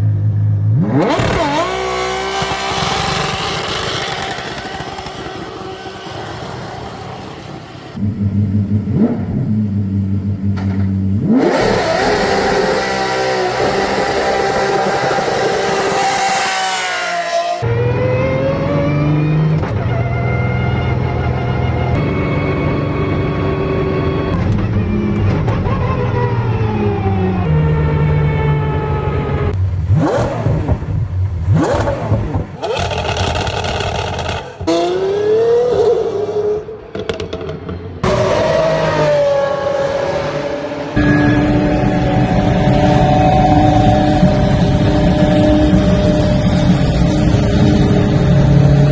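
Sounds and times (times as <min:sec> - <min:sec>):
car engine revving hard: 0:00.7 - 0:07.4, 0:11.2 - 0:17.2, 0:29.9 - 0:36.5
car engine revving: 0:00.7 - 0:22.1, 0:29.5 - 0:48.9.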